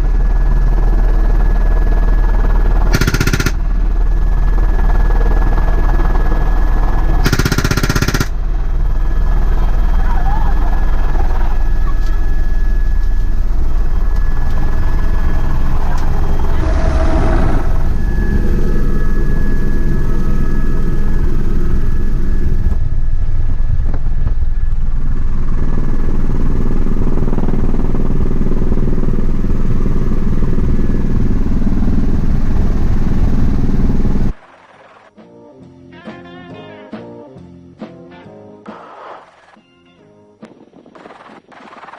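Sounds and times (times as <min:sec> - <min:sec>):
helicopter rotor and engine: 0:00.0 - 0:34.4
machine gun firing: 0:02.7 - 0:10.0.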